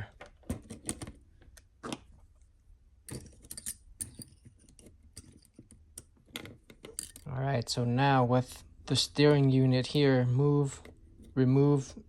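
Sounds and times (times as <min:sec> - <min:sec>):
small metal parts clicking: 0:03.1 - 0:07.3.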